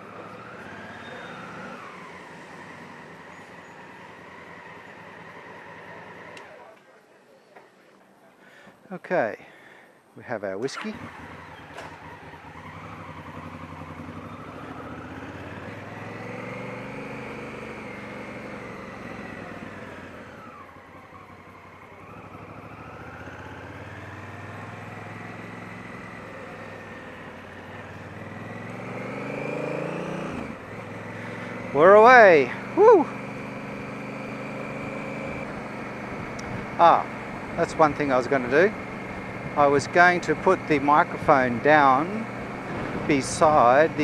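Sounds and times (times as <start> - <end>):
motorcycle engine running: 10.8 - 44.0.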